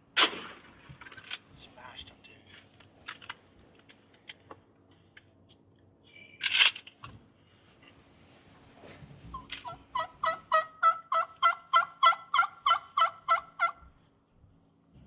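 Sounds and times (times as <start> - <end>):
people shifting with rustles: 6.9 - 9.6.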